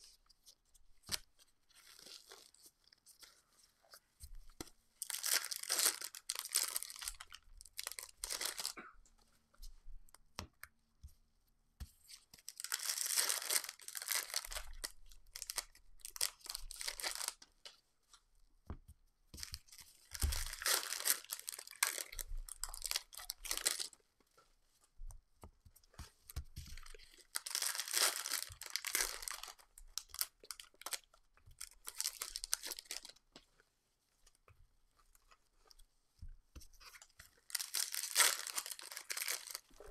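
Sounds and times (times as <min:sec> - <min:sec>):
foil wrappers tearing and crinkling: 0:05.0 - 0:07.2, 0:12.6 - 0:17.4, 0:20.1 - 0:23.9, 0:27.2 - 0:31.0, 0:37.5 - 0:39.8.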